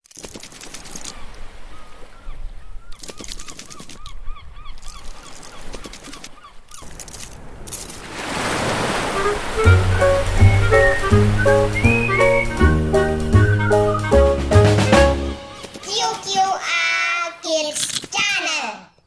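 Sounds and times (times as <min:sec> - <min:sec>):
music: 0:09.2 - 0:15.6.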